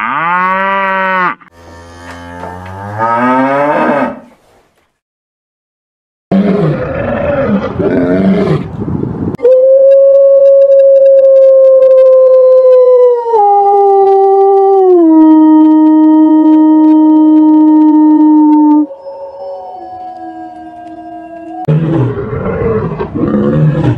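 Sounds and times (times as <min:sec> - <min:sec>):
wolf howling: 0:09.4 - 0:23.5.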